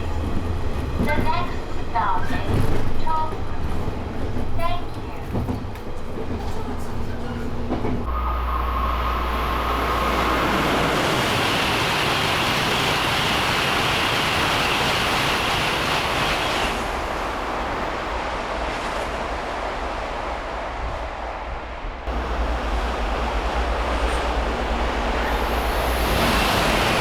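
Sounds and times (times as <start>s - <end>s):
train rushing on rails: 0.0s - 27.0s
faint whine: 8.1s - 11.5s.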